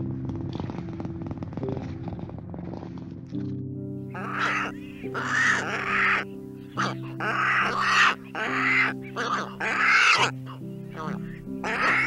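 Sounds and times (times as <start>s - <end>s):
background music with held notes: 0.0s - 12.0s
harsh raspy animal calls: 4.1s - 12.0s.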